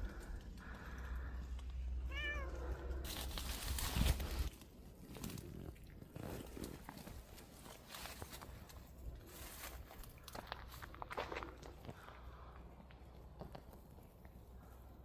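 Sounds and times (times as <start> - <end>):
rustling with low rumble: 0.0 - 15.0
cat meowing: 2.1 - 2.7.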